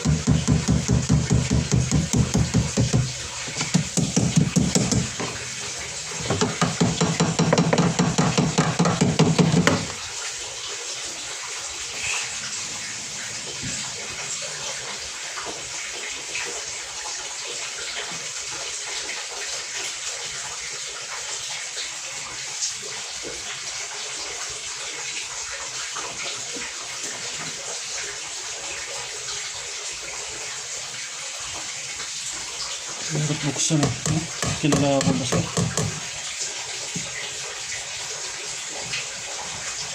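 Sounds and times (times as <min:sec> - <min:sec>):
small knock: 0:00.0 - 0:05.4, 0:33.8 - 0:36.1
water running: 0:00.0 - 0:39.9.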